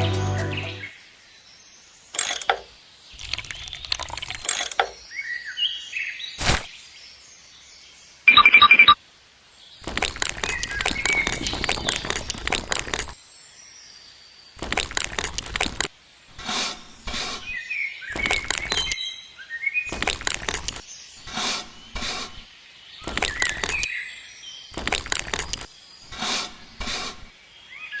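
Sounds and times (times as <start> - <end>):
crunching breaking bursts: 6.4 - 6.7, 14.6 - 15.9
birds chirping: 9.8 - 13.2, 17.4 - 28.0.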